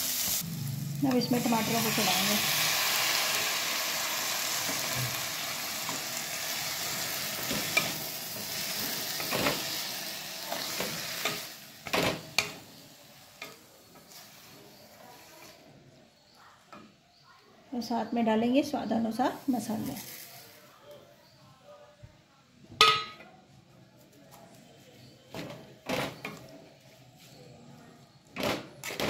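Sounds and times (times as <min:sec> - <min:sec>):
tomatoes sizzling in oil: 0:00.0 - 0:15.6, 0:18.6 - 0:20.5.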